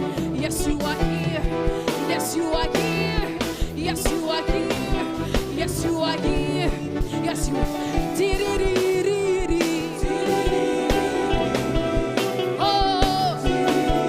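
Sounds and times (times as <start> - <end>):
band playing worship music: 0.0 - 14.0
person singing: 0.0 - 14.0
drum beat: 7.6 - 14.0.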